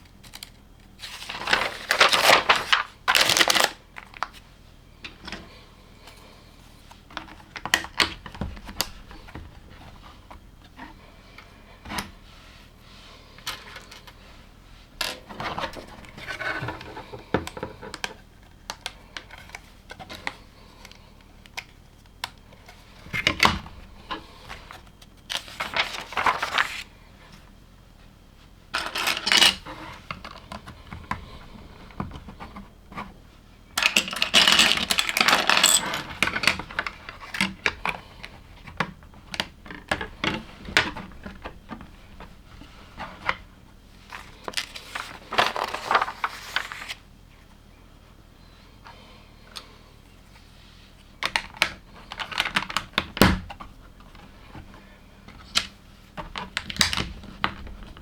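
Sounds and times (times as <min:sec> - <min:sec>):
loose plastic pieces clattering: 0:00.2 - 0:04.3, 0:28.8 - 0:30.2, 0:33.8 - 0:37.9.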